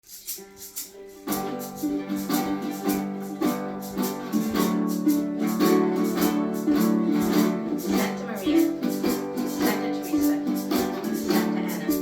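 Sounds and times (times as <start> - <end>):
shaker keeping time: 0.0 - 12.0
ukuleles strumming: 0.1 - 12.0
held notes: 0.3 - 12.0.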